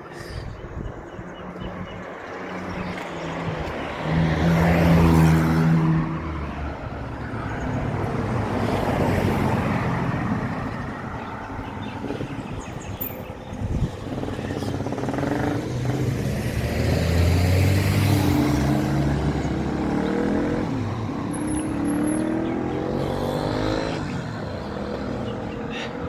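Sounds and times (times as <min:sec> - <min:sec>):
motor vehicle driving by: 0:13.7 - 0:25.8.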